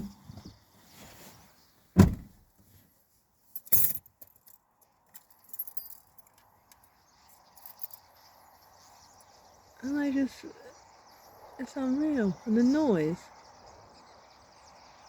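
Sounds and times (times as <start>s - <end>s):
loud thump: 2.0s - 2.3s
starlings clicking and chirping: 4.9s - 15.0s.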